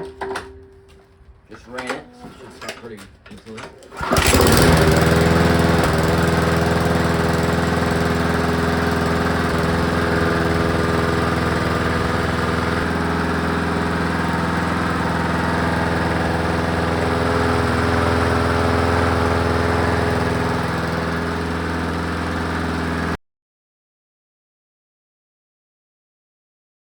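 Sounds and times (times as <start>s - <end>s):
lawn mower engine running: 3.8s - 23.2s.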